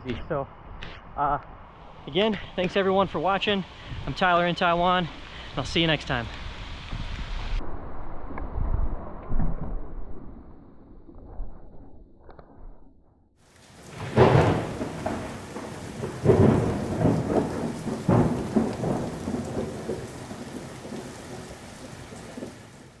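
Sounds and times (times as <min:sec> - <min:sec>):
rain falling steadily: 0:01.2 - 0:07.6, 0:13.4 - 0:23.0
thunder rumbling: 0:13.5 - 0:23.0.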